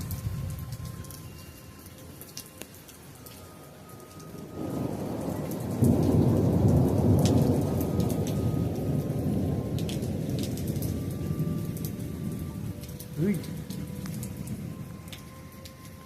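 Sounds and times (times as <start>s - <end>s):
hard rain falling: 0.0s - 16.0s
low roll of thunder: 4.5s - 15.0s.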